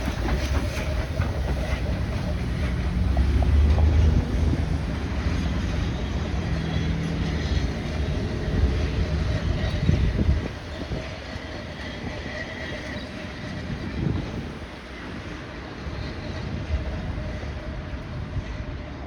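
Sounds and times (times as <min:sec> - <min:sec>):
wheels ringing on rail: 0:00.0 - 0:18.8
train locomotive rumbling: 0:00.0 - 0:19.0.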